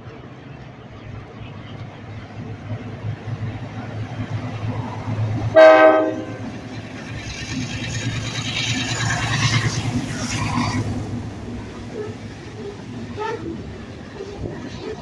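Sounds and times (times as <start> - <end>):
diesel locomotive rumbling: 0.0 - 15.0
freight cars rolling on rails: 0.0 - 15.0
train horn blast: 5.5 - 6.5.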